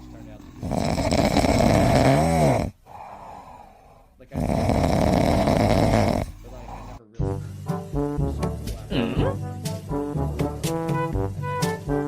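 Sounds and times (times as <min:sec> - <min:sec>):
loud rasping snoring: 0:00.0 - 0:07.0.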